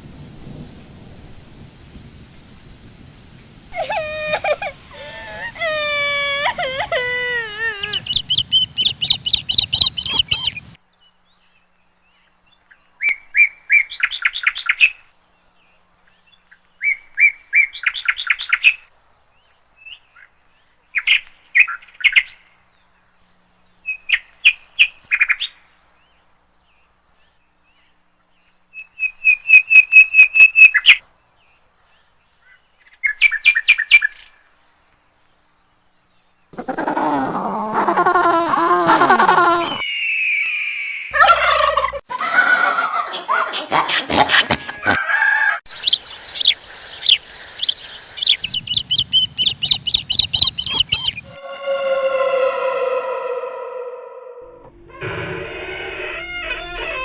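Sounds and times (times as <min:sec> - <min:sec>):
bird chirping: 0:03.8 - 0:25.6, 0:45.7 - 0:52.2.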